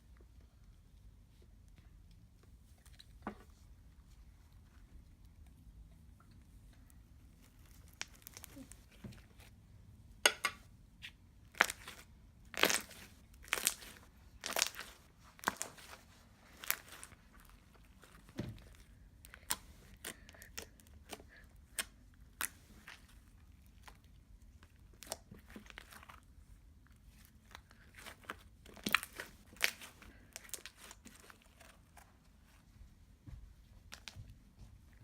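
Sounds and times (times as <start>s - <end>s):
fingers squishing slime: 11.0s - 26.4s, 27.0s - 32.2s.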